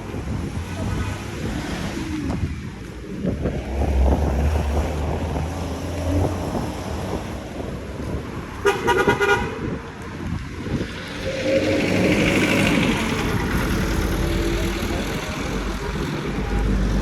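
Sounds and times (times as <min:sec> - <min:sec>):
car horn honk: 0:08.6 - 0:09.6
vehicle passing with engine rumble: 0:10.7 - 0:17.0.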